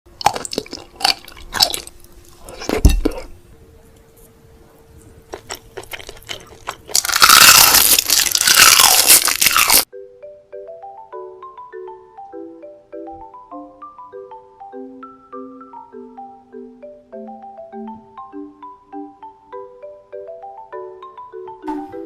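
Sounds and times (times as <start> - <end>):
crunching bites: 0.2 - 3.3, 5.3 - 9.9.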